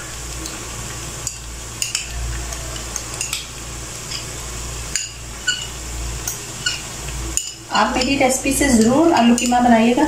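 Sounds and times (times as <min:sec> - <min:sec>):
meat sizzling in a pot: 0:00.0 - 0:10.0
utensils clinking against pot: 0:01.2 - 0:03.5, 0:04.9 - 0:09.7.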